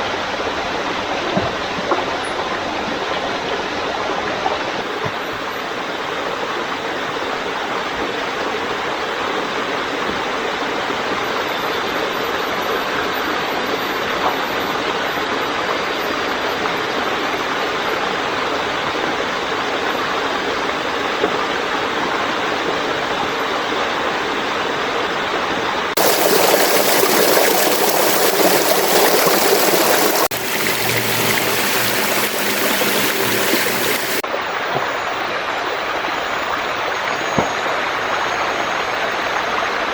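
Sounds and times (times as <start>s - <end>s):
stream water rushing: 26.0s - 39.9s.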